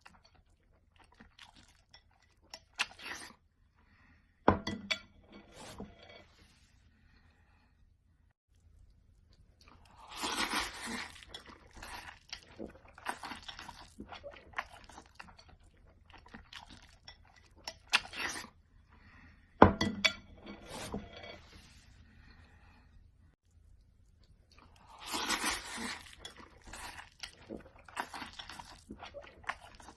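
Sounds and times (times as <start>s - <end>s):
food crunching and chewing: 0.0s - 3.4s, 8.5s - 18.6s, 23.5s - 29.9s.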